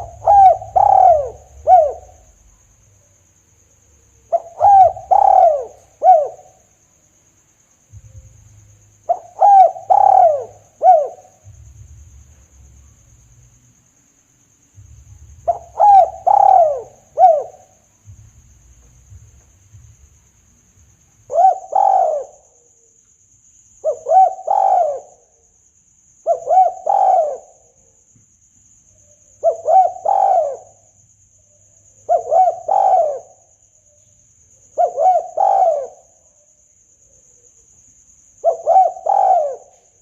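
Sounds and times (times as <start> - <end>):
dove cooing: 0.0 - 2.4, 4.3 - 6.6, 9.0 - 12.1, 15.4 - 18.2, 21.2 - 22.4, 23.8 - 25.2, 26.2 - 27.7, 29.4 - 30.9, 32.0 - 33.4, 34.7 - 36.1, 38.4 - 39.8.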